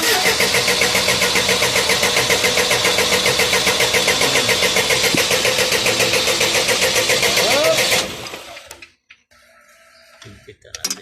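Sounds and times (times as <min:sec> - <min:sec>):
engine cranking on starter: 0:00.0 - 0:08.9.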